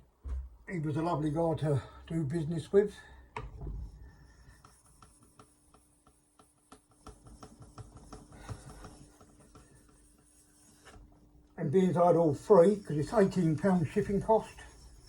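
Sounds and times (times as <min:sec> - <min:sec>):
light taps and rubbing: 0:03.3 - 0:15.0.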